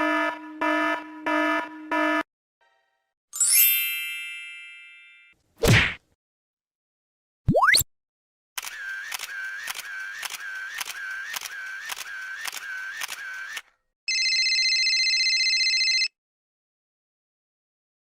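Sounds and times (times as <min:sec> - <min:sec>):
camera shutter clicking: 0:08.6 - 0:13.6
telephone ringing: 0:14.1 - 0:16.2.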